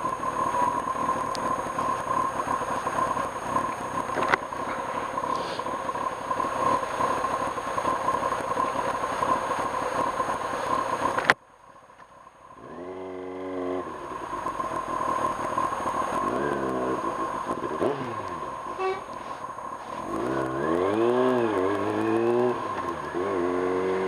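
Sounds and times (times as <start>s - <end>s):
motorcycle engine revving: 0.0s - 11.4s, 12.5s - 24.0s
wind and road rush: 0.0s - 24.0s.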